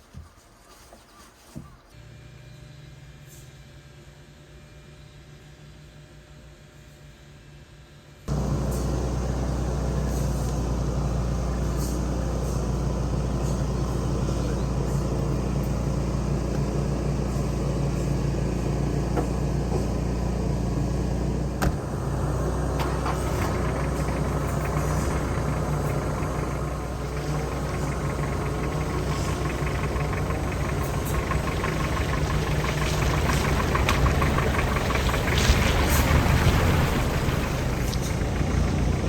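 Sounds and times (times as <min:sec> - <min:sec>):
vehicle engine running: 0:08.3 - 0:39.0.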